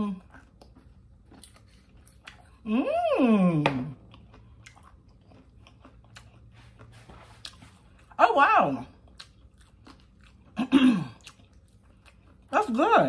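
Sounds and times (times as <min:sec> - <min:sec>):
person chewing taco: 0:00.0 - 0:08.2, 0:08.8 - 0:12.6.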